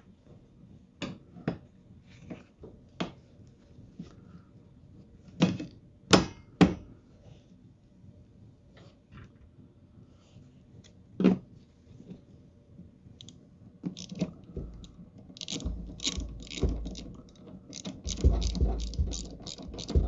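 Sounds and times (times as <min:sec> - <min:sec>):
ratchet wrench clicking: 0:14.0 - 0:20.0
sharp knock: 0:18.1 - 0:20.0.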